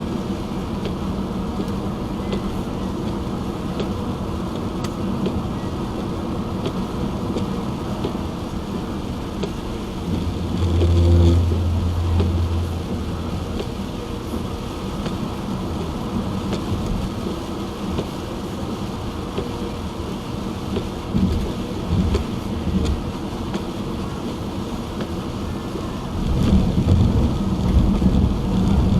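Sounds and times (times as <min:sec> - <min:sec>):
light rain taps: 0:00.0 - 0:28.9
tyre noise on wet road: 0:00.0 - 0:28.9
low engine drone: 0:07.8 - 0:16.2.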